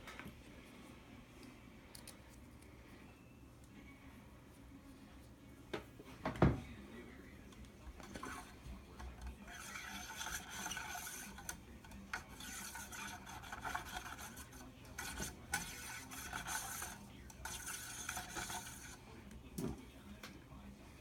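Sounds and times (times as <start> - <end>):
brush scrubbing metal parts: 7.9 - 19.2.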